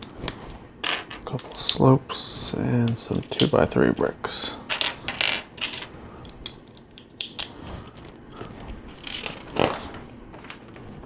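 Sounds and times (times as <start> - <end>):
plastic bricks clicking and clattering: 9.0 - 9.9.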